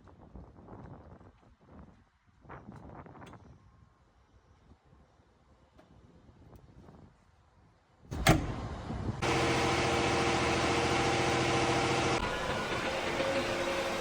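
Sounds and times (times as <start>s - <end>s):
tractor engine running: 8.2s - 14.0s.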